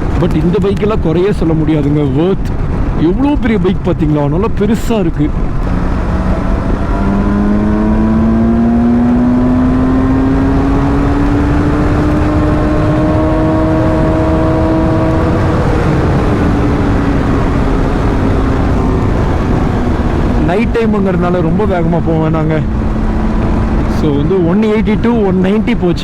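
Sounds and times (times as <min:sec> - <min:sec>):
wind rush: 0:00.0 - 0:26.0
motorcycle engine accelerating: 0:05.3 - 0:25.3.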